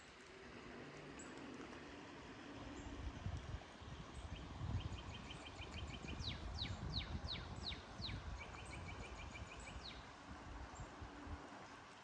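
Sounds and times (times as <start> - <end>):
flowing creek: 0.0 - 12.0
bird song: 4.1 - 10.1.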